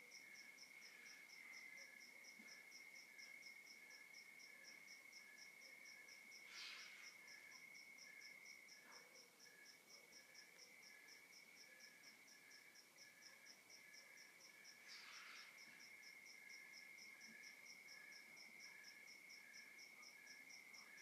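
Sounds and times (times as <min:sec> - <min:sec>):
cricket chirping: 0:00.0 - 0:21.0
slow pulsing insect call: 0:00.0 - 0:21.0.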